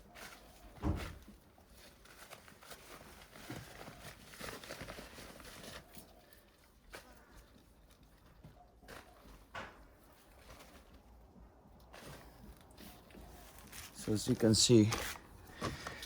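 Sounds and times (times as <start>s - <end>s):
rustling and scraping of soil bag: 0.0s - 16.0s.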